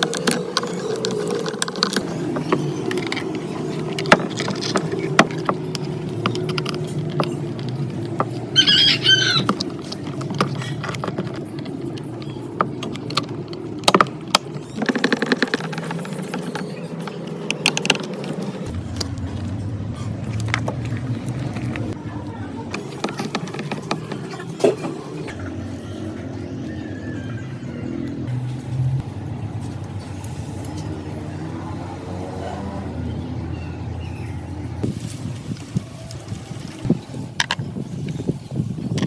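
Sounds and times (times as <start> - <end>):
sharp clicks and knocks: 0.0 - 19.5, 22.7 - 25.2.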